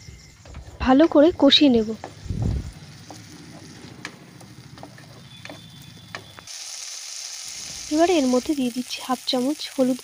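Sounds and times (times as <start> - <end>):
dull low thump: 0.0 - 2.7
food sizzling in pan: 1.7 - 10.0.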